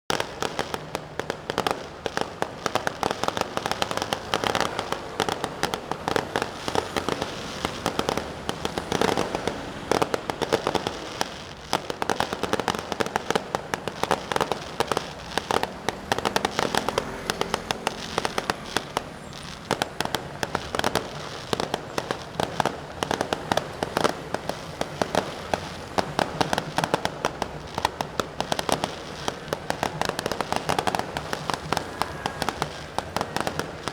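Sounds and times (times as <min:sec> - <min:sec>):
firecrackers crackling: 0:00.1 - 0:33.9.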